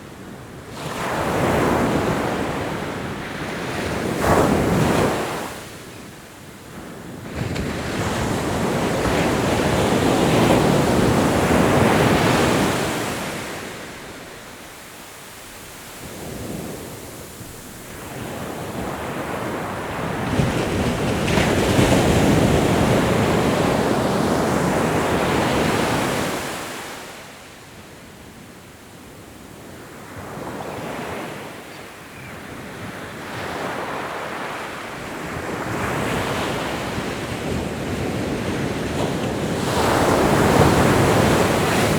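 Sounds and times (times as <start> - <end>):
ocean waves breaking: 35.6 - 41.9.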